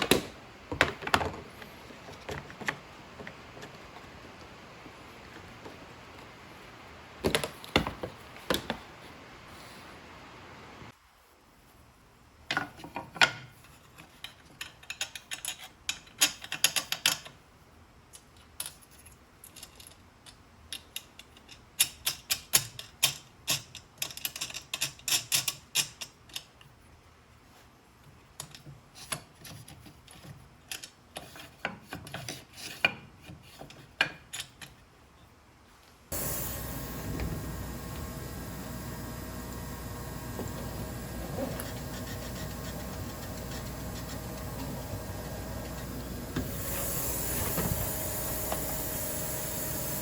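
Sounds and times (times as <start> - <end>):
parts clicking and rattling: 12.8 - 17.4, 18.1 - 26.7.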